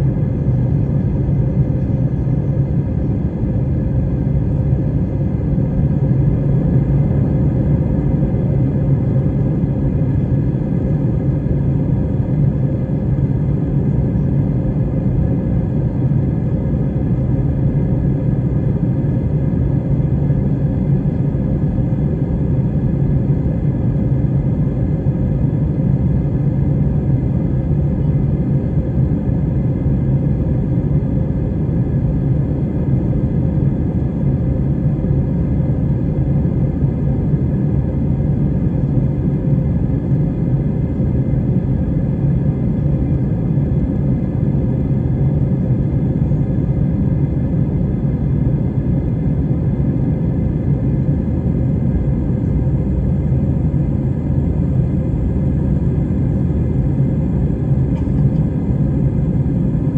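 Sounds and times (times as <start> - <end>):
airliner engine rumble: 0.0 - 59.9
constant hum: 0.0 - 59.9.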